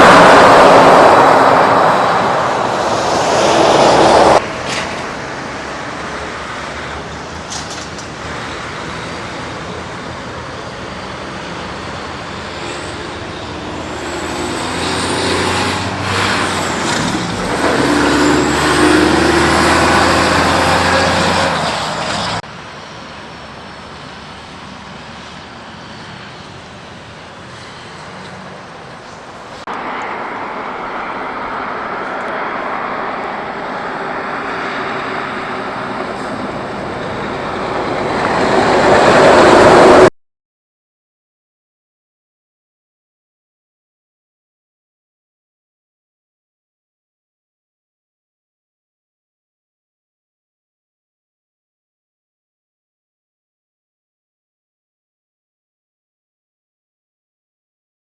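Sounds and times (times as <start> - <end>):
heavy truck driving past: 0.0 - 40.1
road noise: 0.0 - 40.2.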